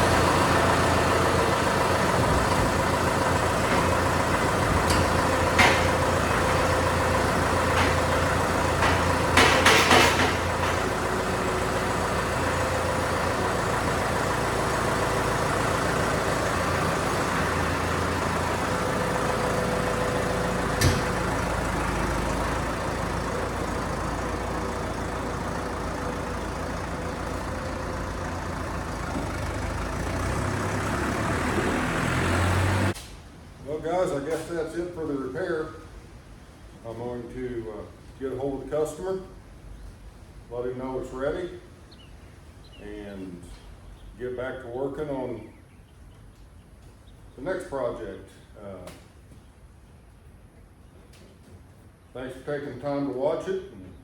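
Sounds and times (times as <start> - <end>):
engine idling: 0.0 - 33.0
sharp metallic knocks: 4.8 - 6.0, 8.8 - 11.0, 20.7 - 21.2.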